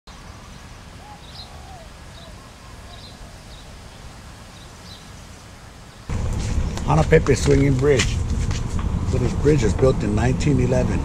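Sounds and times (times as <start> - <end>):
lower whistled bird notes: 0.1 - 6.8
steady low rumble: 6.1 - 11.0.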